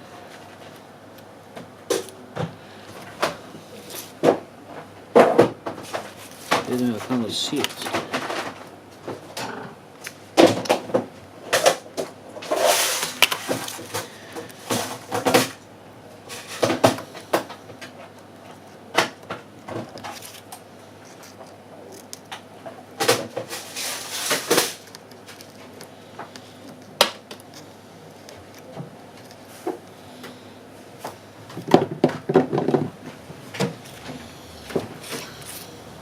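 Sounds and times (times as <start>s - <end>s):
rustling scrapes: 12.4s - 15.1s, 23.4s - 25.8s.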